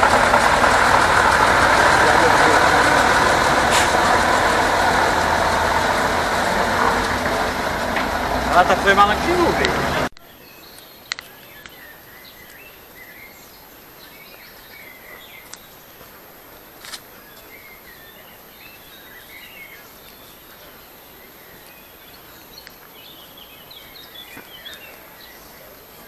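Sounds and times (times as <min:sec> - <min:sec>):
faint outdoor hiss: 0:08.5 - 0:26.0
birds chirping and calling: 0:17.2 - 0:26.0.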